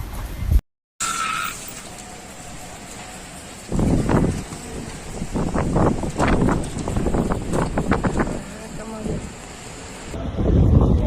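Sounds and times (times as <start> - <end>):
wind gusting against microphone: 1.9 - 11.0.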